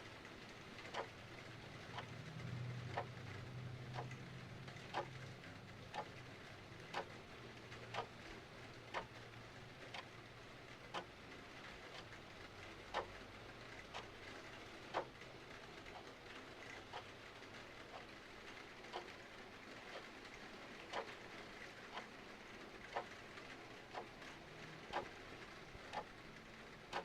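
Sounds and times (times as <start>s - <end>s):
clock ticking: 0.8s - 1.2s, 2.8s - 8.2s, 8.9s - 9.2s, 9.8s - 13.2s, 13.9s - 14.3s, 14.9s - 19.3s, 19.9s - 22.1s, 22.8s - 26.2s.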